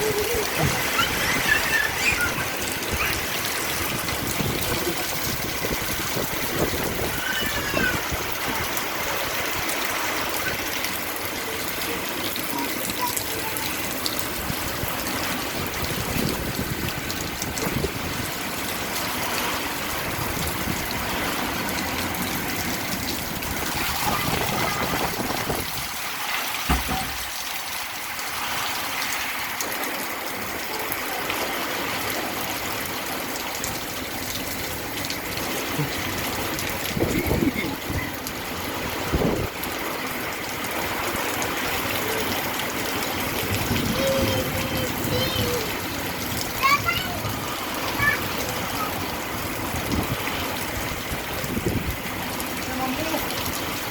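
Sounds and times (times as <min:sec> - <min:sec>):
heavy rain: 0:00.0 - 0:53.9
water rushing: 0:00.0 - 0:53.9
low thump: 0:26.7 - 0:27.4.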